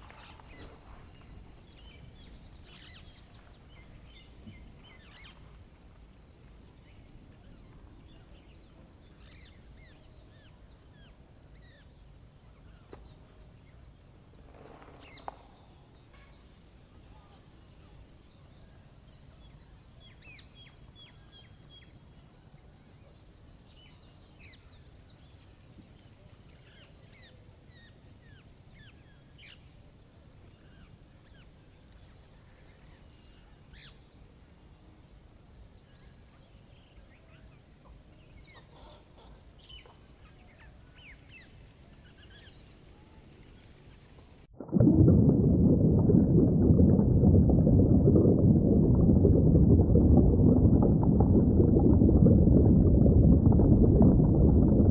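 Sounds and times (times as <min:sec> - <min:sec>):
rustle: 0:00.0 - 0:06.8, 0:12.5 - 0:17.6, 0:23.4 - 0:44.5
small birds chirping: 0:00.0 - 0:29.8, 0:34.8 - 0:44.5
low background rumble: 0:44.4 - 0:54.9.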